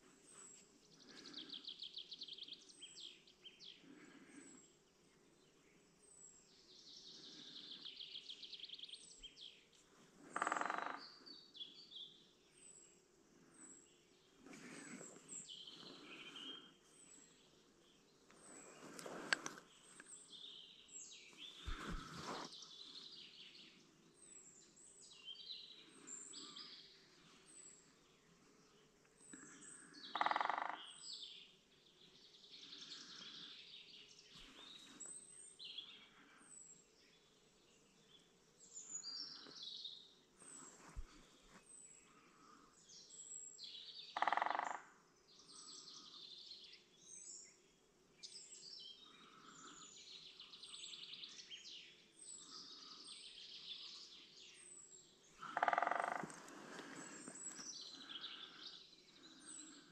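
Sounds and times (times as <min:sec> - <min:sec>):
faint outdoor background noise: 0:00.0 - 0:59.9
songbirds calling and singing: 0:00.0 - 0:59.9
short rustling noises: 0:21.6 - 0:22.5.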